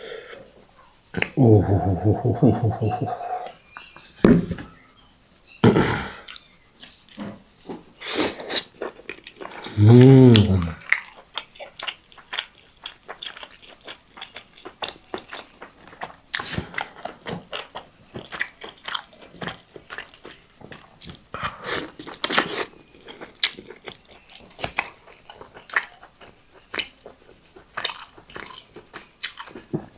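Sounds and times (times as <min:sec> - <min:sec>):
person chewing and biting food: 0:08.2 - 0:29.9.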